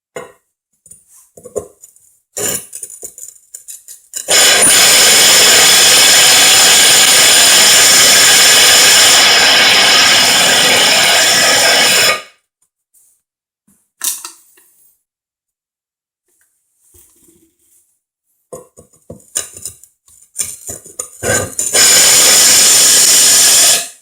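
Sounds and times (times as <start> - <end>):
electric drill whining into tile: 4.2 - 12.3, 21.2 - 24.0.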